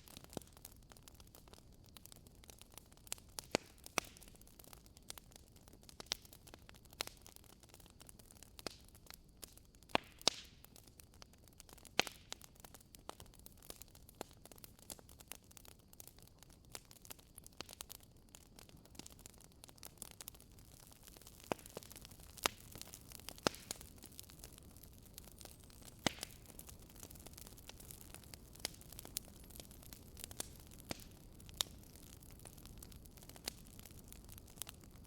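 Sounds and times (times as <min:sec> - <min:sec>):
fire popping: 0:00.0 - 0:35.0
wood fire crackling: 0:00.0 - 0:35.0.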